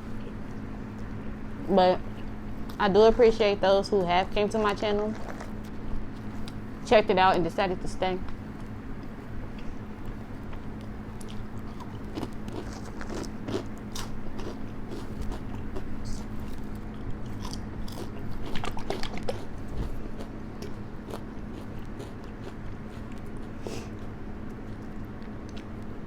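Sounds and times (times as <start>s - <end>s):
fan humming: 0.0s - 26.0s
person chewing crunchy food: 5.1s - 6.6s, 8.4s - 25.9s.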